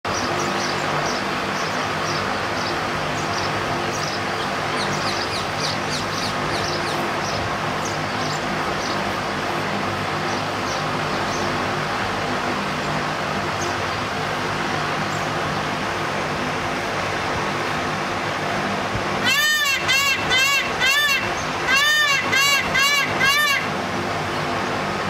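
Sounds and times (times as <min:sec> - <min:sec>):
small birds chirping: 0:00.1 - 0:09.2, 0:10.2 - 0:11.6
steady hum and hiss: 0:00.1 - 0:25.0.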